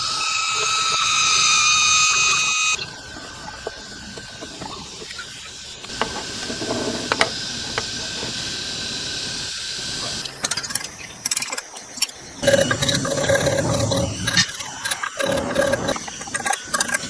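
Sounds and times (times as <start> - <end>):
loud machine hum: 0.0 - 10.2, 12.4 - 17.0
faint machine whine: 0.0 - 17.0
workshop machine hissing: 0.0 - 17.0
sharp knocks and clicks: 5.9 - 8.3.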